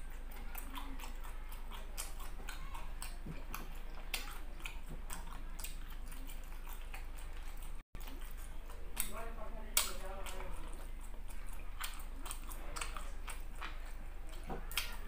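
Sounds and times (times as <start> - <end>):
man chewing: 0.0 - 15.0
wet mouth clicks: 0.0 - 15.0.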